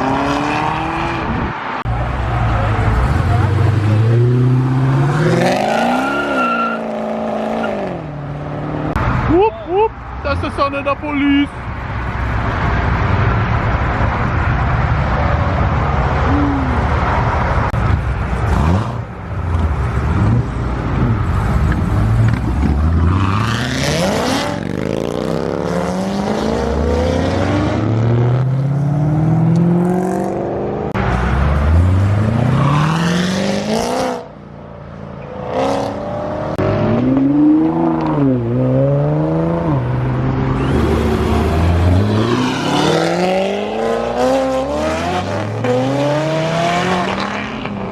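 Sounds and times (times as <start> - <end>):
car engines accelerating: 0.0 - 10.6, 11.5 - 47.9
engine revving: 35.4 - 47.8.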